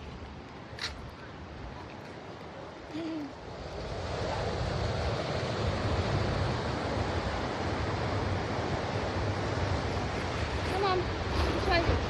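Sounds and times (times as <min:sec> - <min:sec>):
ocean surf: 0:00.0 - 0:12.0
wind buffeting microphone: 0:03.3 - 0:12.0.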